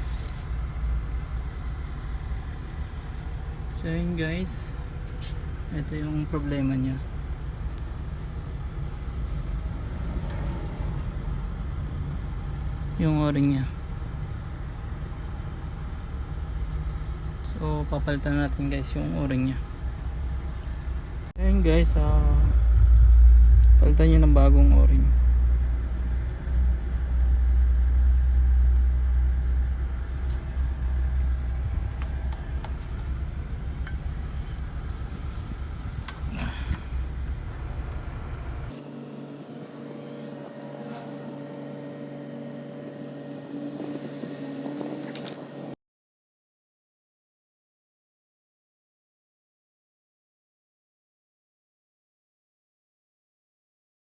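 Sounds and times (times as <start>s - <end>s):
low rumble: 0.0s - 13.1s, 19.6s - 38.7s
engine idling: 0.0s - 45.6s.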